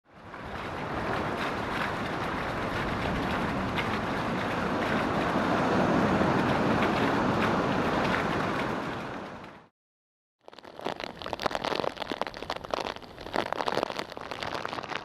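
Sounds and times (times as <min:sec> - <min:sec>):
wind buffeting microphone: 0:00.2 - 0:09.4
heavy surf: 0:00.4 - 0:09.4.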